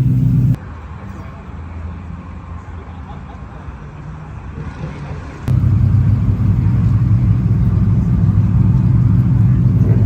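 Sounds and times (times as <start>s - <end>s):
car engine rumble: 0.0s - 0.6s, 5.3s - 10.0s
loud car engine running close: 0.0s - 0.6s, 5.4s - 10.0s.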